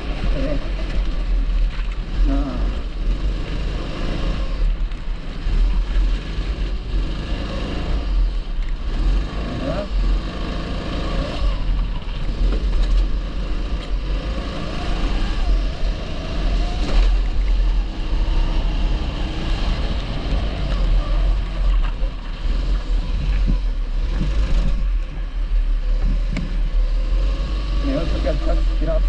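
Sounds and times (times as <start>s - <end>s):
kart engine revving: 0.0s - 29.0s
wind rumbling on microphone: 11.4s - 28.5s.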